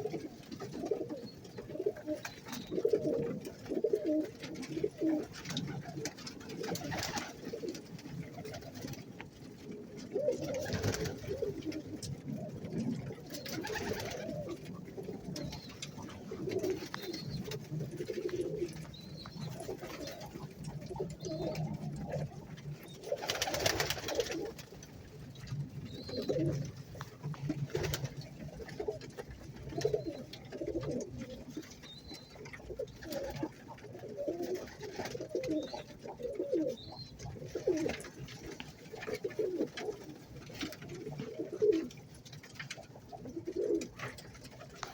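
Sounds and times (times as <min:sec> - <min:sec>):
pigeons cooing: 0:00.0 - 0:44.9.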